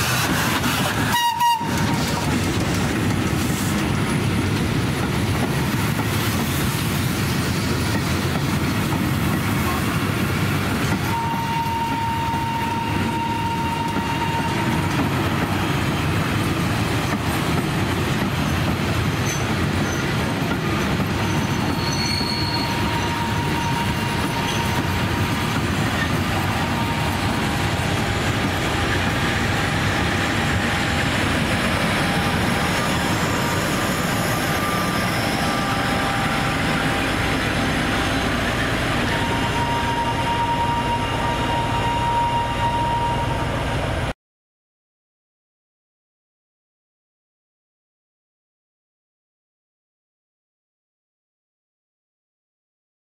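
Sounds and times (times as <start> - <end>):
train wheels rumbling on track: 0.0 - 44.1
drawn-out wheel squeals: 21.2 - 25.0.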